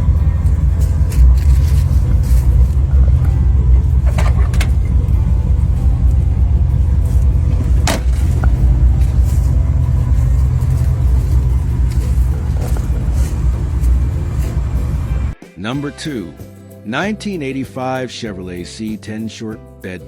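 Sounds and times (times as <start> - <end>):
engine deep rumble: 0.0 - 15.4.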